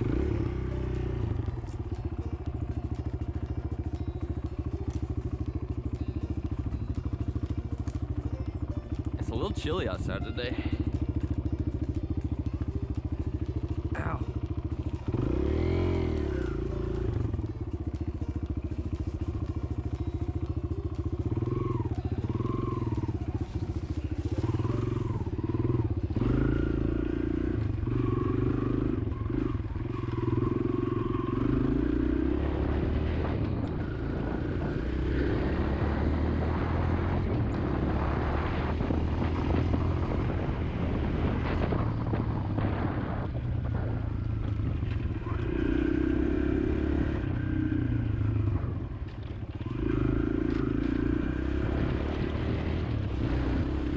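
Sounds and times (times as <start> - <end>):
dirt bike engine revving: 0.0 - 1.6, 13.3 - 43.9, 44.8 - 53.9
wind noise on microphone: 32.4 - 45.4.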